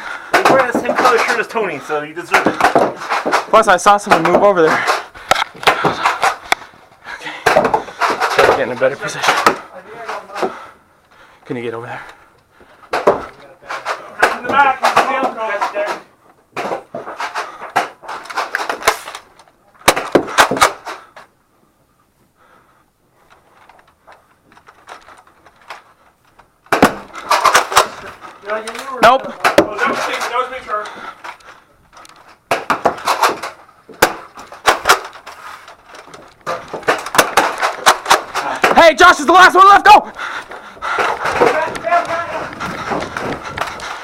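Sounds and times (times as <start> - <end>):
sharp knocks of hard objects: 0.3 - 1.4, 2.3 - 6.7, 7.4 - 10.6, 12.9 - 19.2, 19.8 - 21.0, 26.7 - 28.1, 29.0 - 31.4, 32.4 - 35.2, 36.0 - 39.1.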